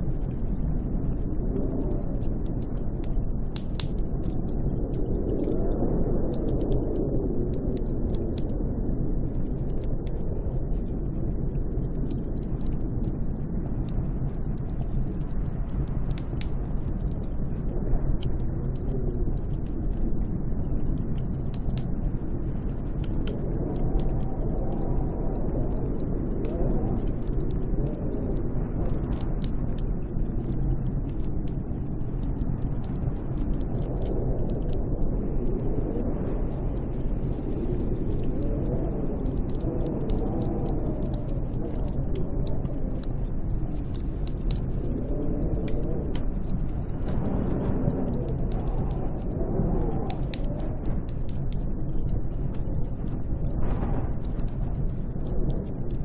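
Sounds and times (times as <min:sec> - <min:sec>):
sharp crackling clicks: 0:00.0 - 0:56.0
wind blowing with low rumble: 0:00.0 - 0:56.0
snowstorm wind rushing: 0:32.6 - 0:55.7.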